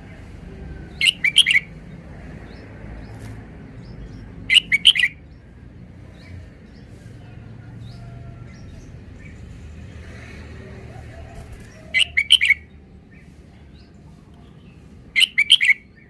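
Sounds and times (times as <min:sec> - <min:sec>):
bulbul singing loud phrases: 0:00.8 - 0:03.2, 0:03.8 - 0:05.5, 0:11.0 - 0:16.0.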